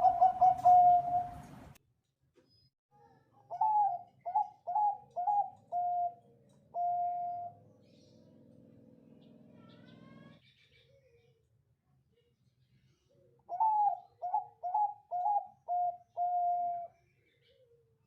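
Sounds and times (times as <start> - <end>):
dove cooing: 0.0 - 1.7, 3.5 - 7.7, 13.5 - 16.9.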